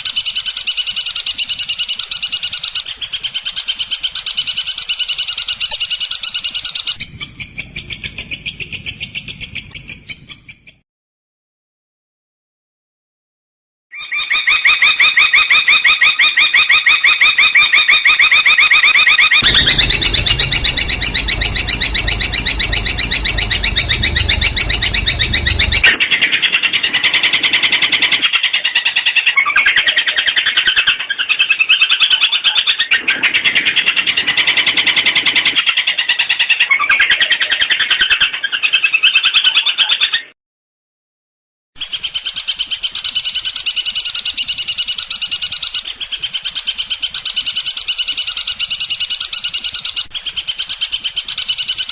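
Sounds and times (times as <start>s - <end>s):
low rumble: 19.4s - 25.9s.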